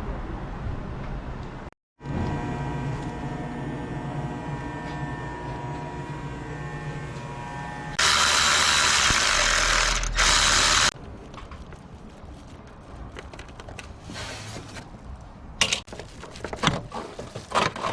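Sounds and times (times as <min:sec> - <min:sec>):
mechanical hum with tones: 0:02.0 - 0:11.0.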